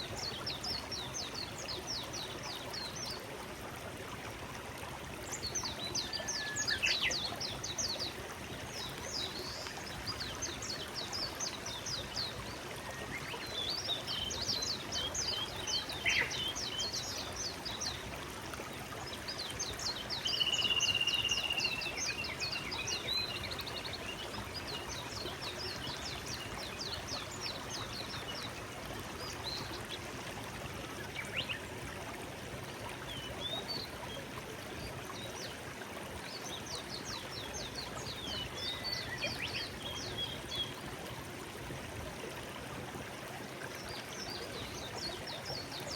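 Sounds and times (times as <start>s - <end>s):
forest stream flowing: 0.0s - 45.9s
songbirds singing: 5.2s - 18.1s, 19.0s - 30.0s, 36.3s - 40.9s.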